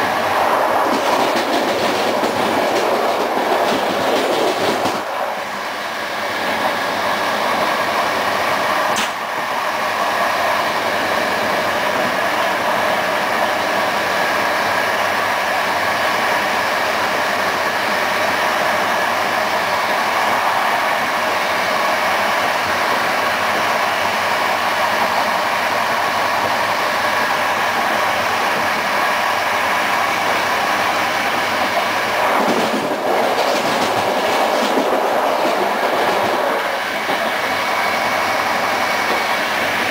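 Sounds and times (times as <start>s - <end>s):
train wheels rumbling on rails: 0.0s - 39.9s
short sharp click: 9.0s - 9.2s.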